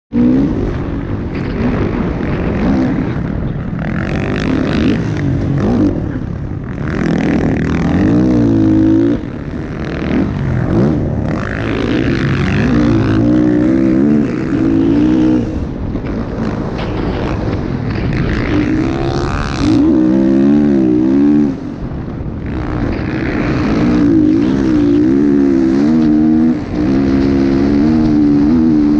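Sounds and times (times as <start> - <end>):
motocross motorcycle engines revving: 0.1 - 28.9.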